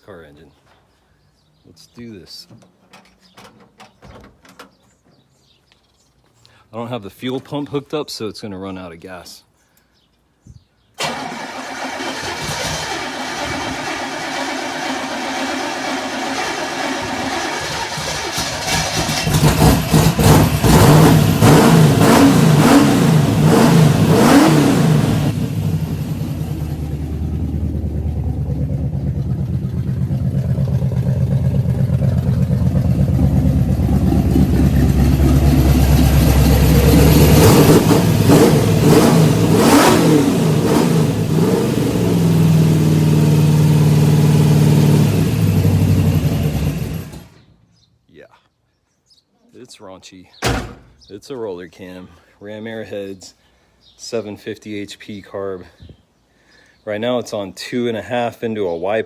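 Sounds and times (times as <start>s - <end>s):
car engine revving and idling: 11.8s - 47.4s.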